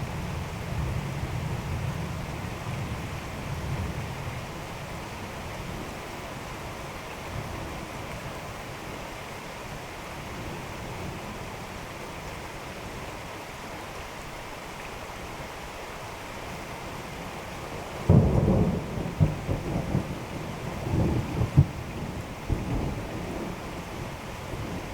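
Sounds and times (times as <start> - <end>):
steady rain: 0.0 - 24.9
thunderclap rumbling: 18.1 - 23.8.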